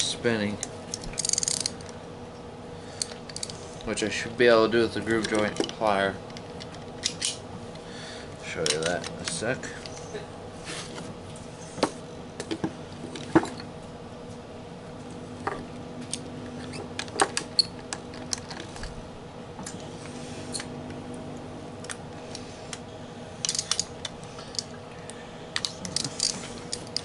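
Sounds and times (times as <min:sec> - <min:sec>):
metal tools clicking and clinking: 0:23.4 - 0:23.9, 0:25.6 - 0:27.0.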